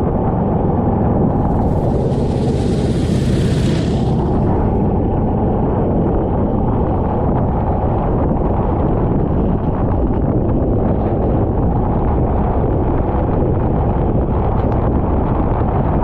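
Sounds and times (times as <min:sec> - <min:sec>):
wind buffeting microphone: 0:00.0 - 0:16.0
kart engine running: 0:00.8 - 0:04.8.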